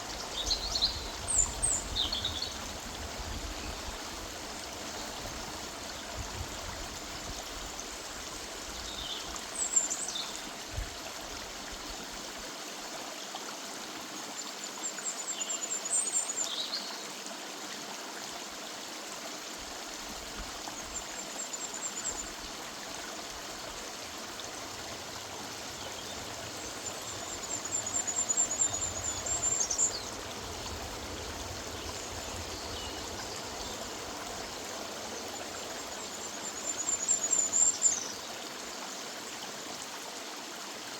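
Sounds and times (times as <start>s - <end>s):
river water rushing: 17.7s - 40.9s.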